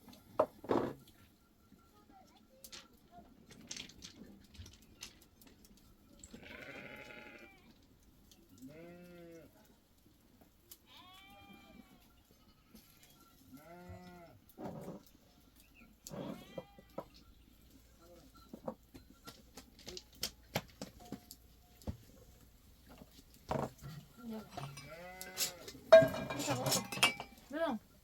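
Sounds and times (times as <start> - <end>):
sheep bleating: 6.4 - 7.7, 8.6 - 9.5, 24.8 - 25.8.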